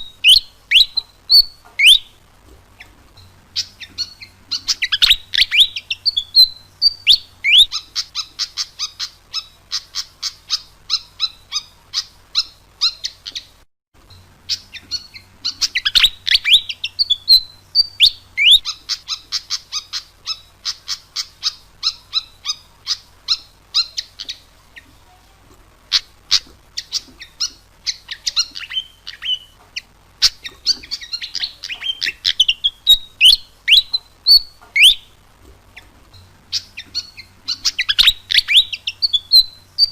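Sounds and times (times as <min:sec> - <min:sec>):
bird singing sharp chirps: 0:36.5 - 0:39.9.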